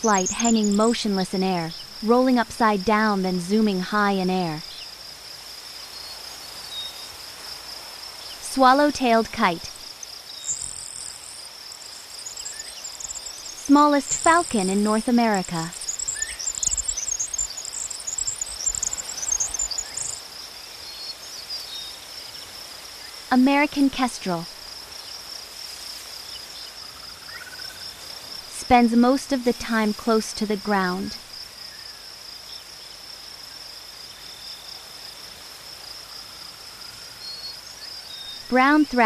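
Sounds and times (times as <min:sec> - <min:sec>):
cricket chirring: 0:00.0 - 0:39.0
insect chorus: 0:00.0 - 0:39.0.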